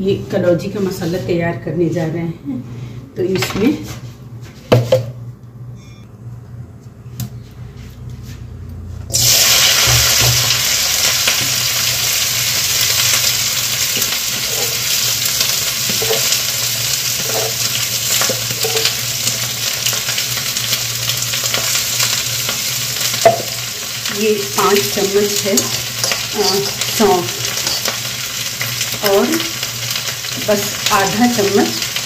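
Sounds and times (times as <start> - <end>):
vegetables sizzling in hot oil: 9.1 - 32.0.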